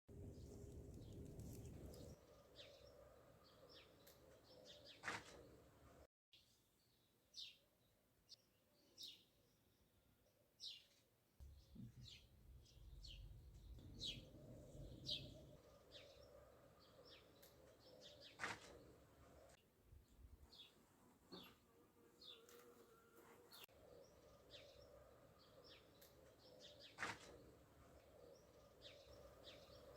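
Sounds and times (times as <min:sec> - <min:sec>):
small birds chirping: 0:00.2 - 0:05.6, 0:10.6 - 0:19.6, 0:23.4 - 0:29.9.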